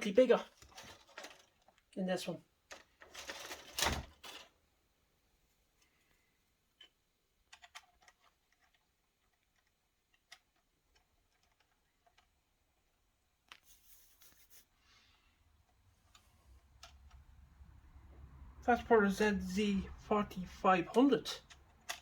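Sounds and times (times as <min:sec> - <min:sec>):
faint clicks and taps: 0:15.6 - 0:18.4.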